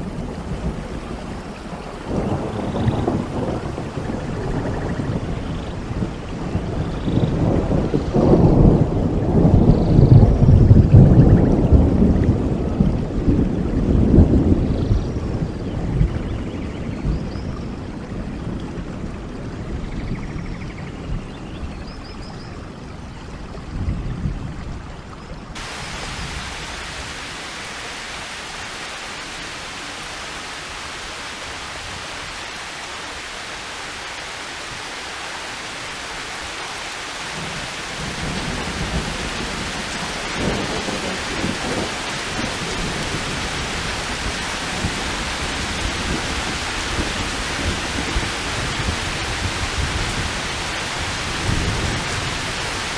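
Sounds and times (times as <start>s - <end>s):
heavy rainfall hiss: 0.0s - 8.8s, 25.6s - 52.9s
low thunder rumbling: 0.0s - 16.3s, 25.6s - 52.9s.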